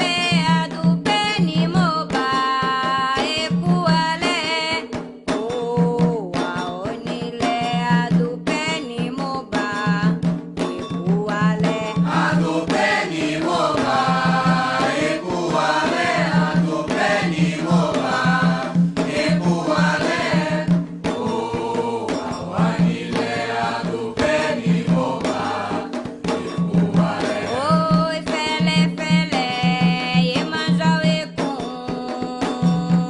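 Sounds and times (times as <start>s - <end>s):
steady drum beat: 0.0s - 33.0s
voices chanting: 12.1s - 27.8s.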